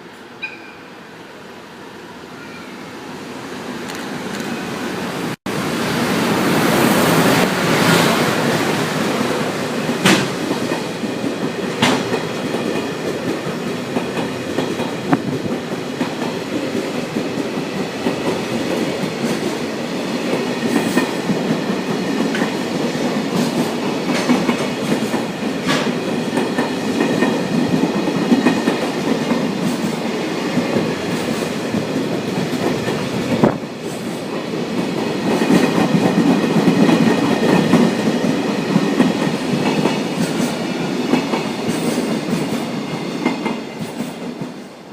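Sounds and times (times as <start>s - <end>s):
freight train wheels clattering: 9.7s - 44.7s.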